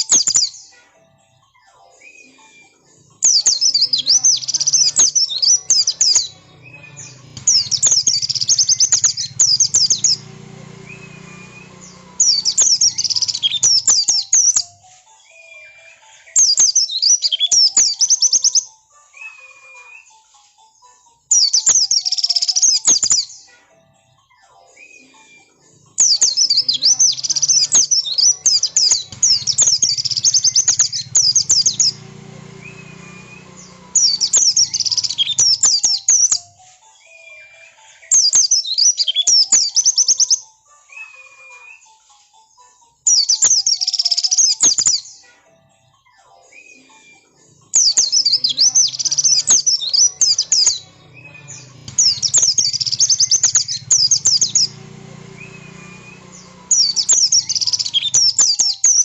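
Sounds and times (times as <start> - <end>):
bird twittering chirps: 3.1 - 14.7, 21.3 - 23.4, 25.9 - 36.4, 43.1 - 45.2, 47.6 - 59.0.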